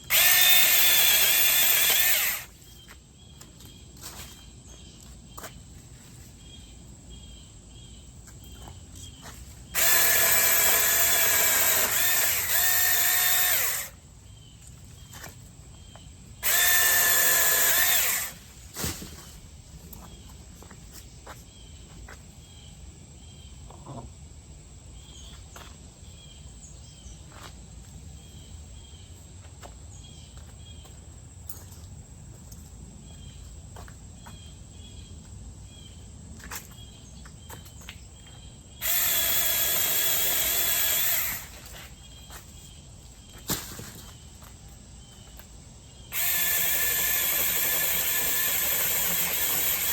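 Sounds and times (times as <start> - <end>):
cordless chainsaw motor whine: 0.0 - 2.6, 9.7 - 14.0, 16.4 - 18.6, 38.8 - 42.0, 46.1 - 49.9.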